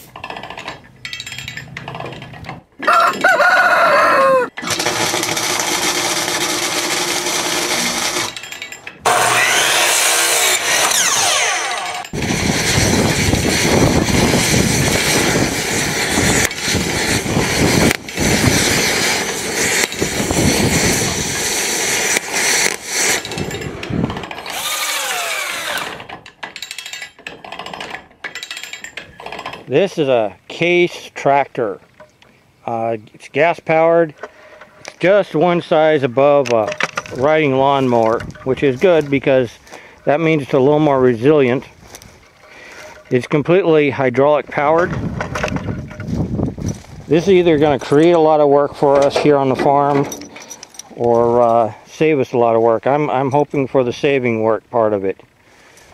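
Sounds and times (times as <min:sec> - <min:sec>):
rooster crowing: 0:02.8 - 0:04.6.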